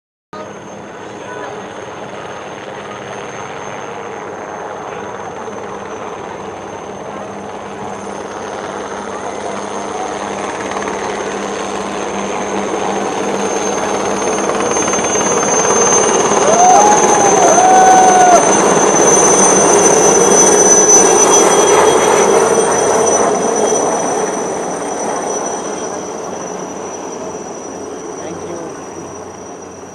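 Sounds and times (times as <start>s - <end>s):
helicopter engine and rotor: 0.4s - 29.9s
thin high whine: 0.4s - 29.9s.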